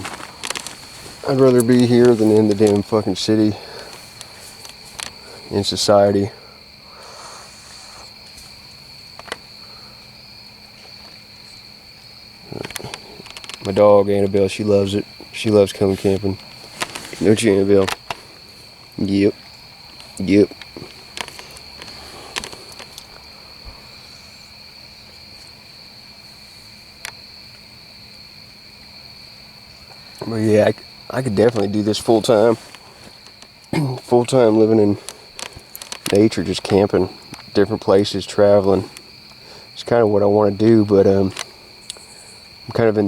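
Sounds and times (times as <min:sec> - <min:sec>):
insects droning: 0:00.0 - 0:43.0.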